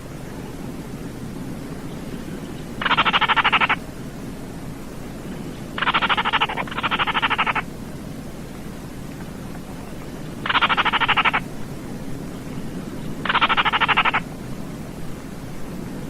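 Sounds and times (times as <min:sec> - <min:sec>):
low hiss: 0:00.0 - 0:16.0
bird rattling call: 0:02.8 - 0:03.8, 0:05.7 - 0:07.7, 0:10.4 - 0:11.5, 0:13.2 - 0:14.2.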